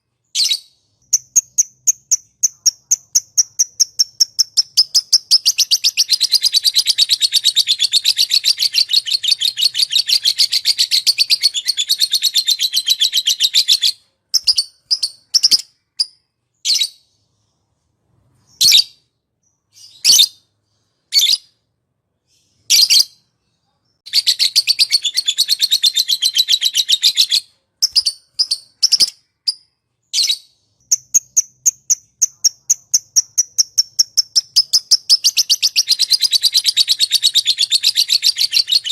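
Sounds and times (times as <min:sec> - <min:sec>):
small songbird chirping: 0:00.0 - 0:21.6, 0:22.2 - 0:38.9.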